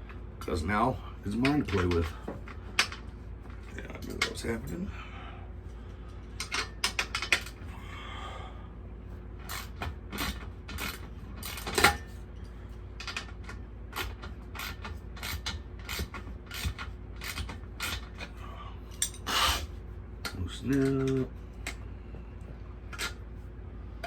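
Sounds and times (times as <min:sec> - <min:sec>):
brief metal scrape: 0:19.1 - 0:19.7.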